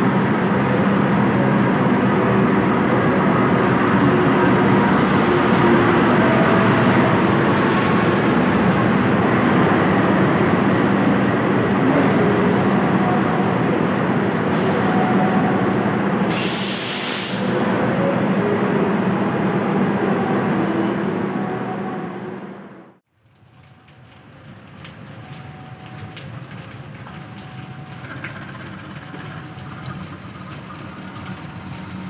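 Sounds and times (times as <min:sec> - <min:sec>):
locomotive low hum: 0:00.0 - 0:23.0, 0:25.2 - 0:32.0
train rumbling on rails: 0:00.0 - 0:23.0, 0:27.1 - 0:32.0
brief hiss: 0:16.3 - 0:17.6.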